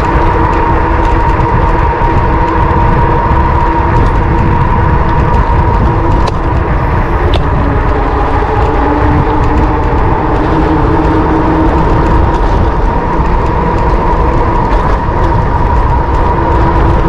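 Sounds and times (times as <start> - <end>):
electric motor whine: 0.0 - 17.0
wind rushing over microphone: 0.0 - 17.0.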